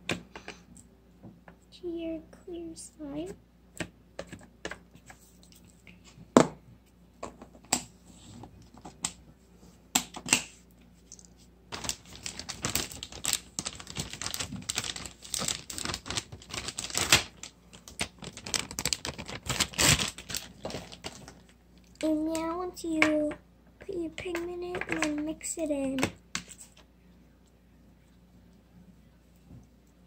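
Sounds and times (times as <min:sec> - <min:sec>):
slime squishing and crackling: 0:11.7 - 0:21.5.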